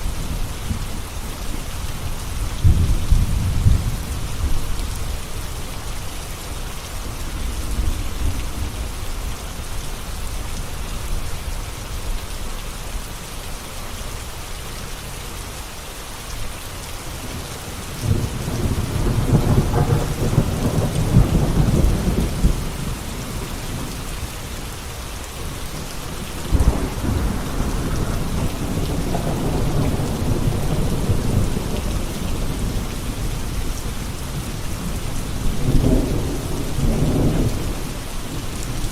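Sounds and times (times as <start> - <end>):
steady rain falling: 0.0 - 38.9
rumbling thunder: 2.4 - 5.2, 17.2 - 24.2, 25.4 - 38.9.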